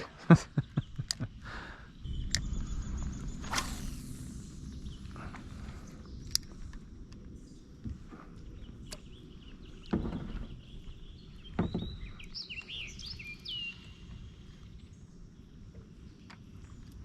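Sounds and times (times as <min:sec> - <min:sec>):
steady low rumble: 0:00.0 - 0:17.0
bird chirping: 0:00.4 - 0:16.8
light clicks: 0:01.0 - 0:01.3, 0:06.0 - 0:07.3
dull knocks: 0:11.5 - 0:12.1.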